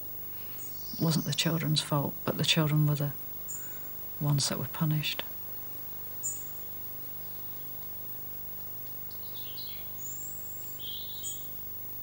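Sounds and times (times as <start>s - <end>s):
steady low hum: 0.0s - 12.0s
small birds chirping: 0.4s - 11.8s.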